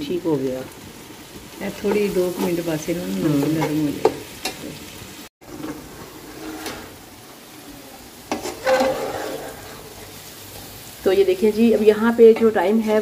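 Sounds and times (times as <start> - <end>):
food sizzling in a metal pot: 0.0 - 13.0
metal spatula scraping a pot: 5.5 - 7.1, 8.3 - 10.7.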